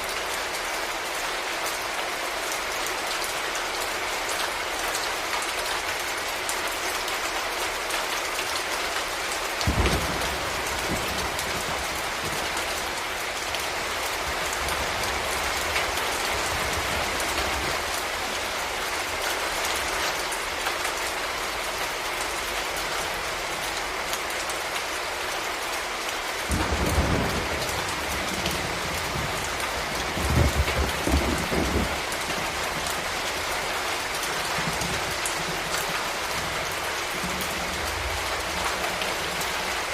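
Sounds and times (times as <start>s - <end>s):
steady rain falling: 0.0s - 39.9s
thunder rolling: 9.6s - 12.8s, 26.5s - 33.3s.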